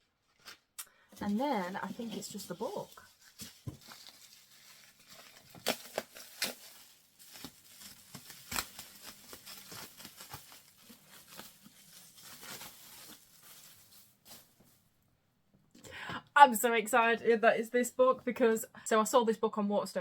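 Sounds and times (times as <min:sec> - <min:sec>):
book wrapping rustling and crackling: 0:00.2 - 0:14.9.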